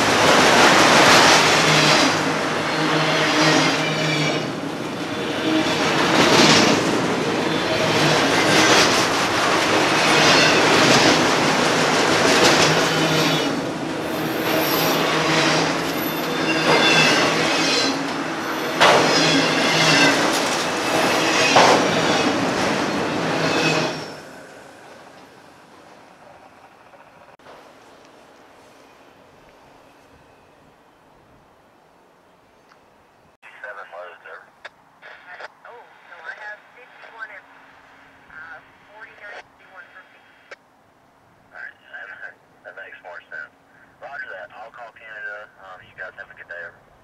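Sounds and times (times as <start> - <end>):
wheels clacking over rail joints: 0.0 - 28.5
freight train wheels rumbling on rail: 0.0 - 30.2
high-pitched wheel squeals: 2.7 - 4.6, 10.0 - 11.0, 12.9 - 24.4.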